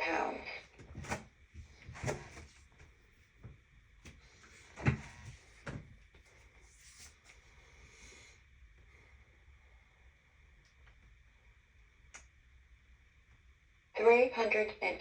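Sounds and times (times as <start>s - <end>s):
soft knocks and bumps: 0.8s - 6.0s.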